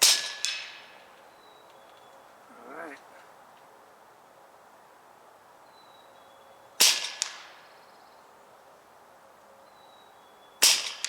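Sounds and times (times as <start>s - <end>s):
air rifle shot: 0.0s - 0.8s, 10.6s - 11.0s.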